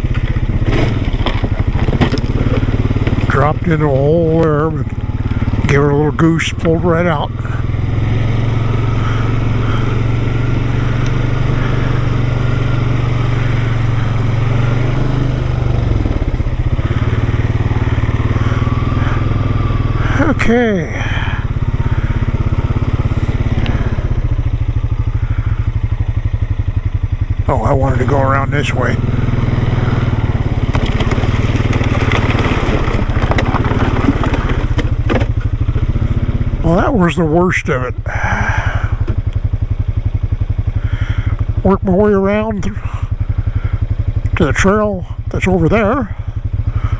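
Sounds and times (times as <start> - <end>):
atv engine running: 0.0 - 46.9
sharp knocks and clunks: 30.6 - 35.9.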